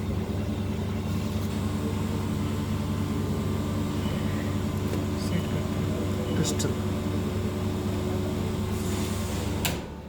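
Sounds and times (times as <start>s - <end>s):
vacuum pump motor hum: 0.0s - 10.0s.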